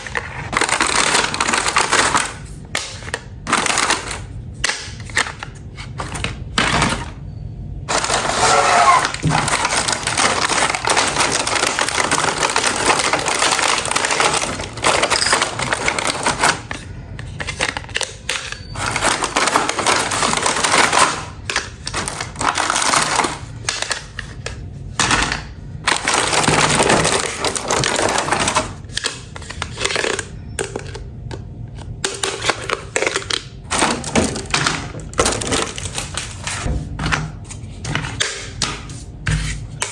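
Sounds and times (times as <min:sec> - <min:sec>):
hands handling plastic toys: 0:00.0 - 0:07.1, 0:07.9 - 0:25.3.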